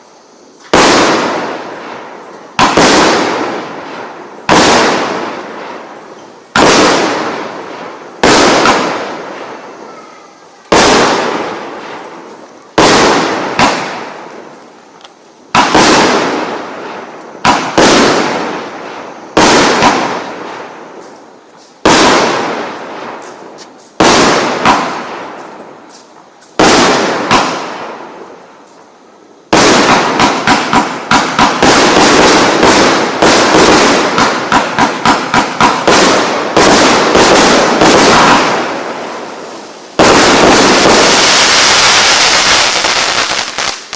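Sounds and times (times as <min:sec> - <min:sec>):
firework bursts: 0:00.0 - 0:43.9.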